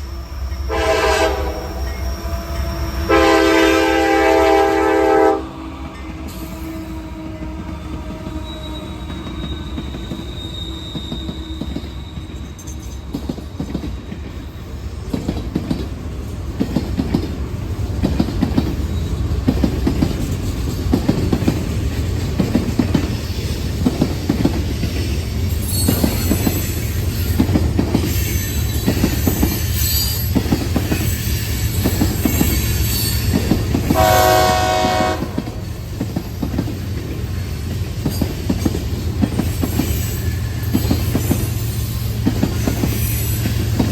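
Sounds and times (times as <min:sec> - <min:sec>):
locomotive horn blast: 0:00.7 - 0:05.7, 0:06.4 - 0:09.3, 0:33.9 - 0:35.6
train wheels clicking over rail joints: 0:05.8 - 0:43.9
wheels squealing: 0:08.2 - 0:14.3.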